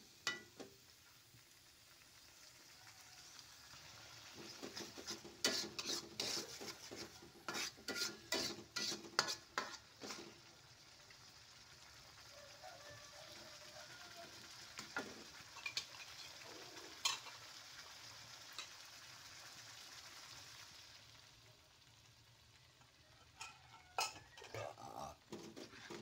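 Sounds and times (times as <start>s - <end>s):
sauce sizzling in a wok: 0.0s - 26.0s
metal spatula clinking on pan: 0.2s - 0.6s, 7.5s - 9.8s, 15.0s - 16.4s, 17.0s - 17.4s, 22.8s - 24.6s.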